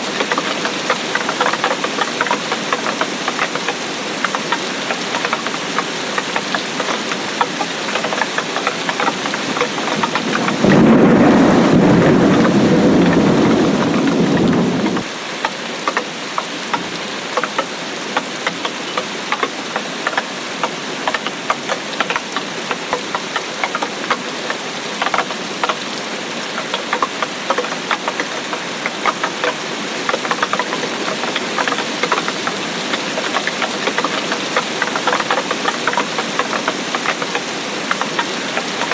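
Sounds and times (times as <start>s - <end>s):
raindrops striking a surface: 0.0s - 38.9s
steady rain: 0.0s - 38.9s
deep rumble of thunder: 9.7s - 15.0s.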